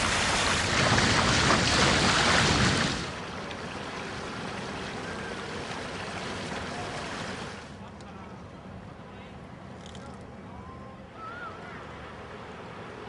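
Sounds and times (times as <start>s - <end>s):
wind and water rushing: 0.0s - 7.8s.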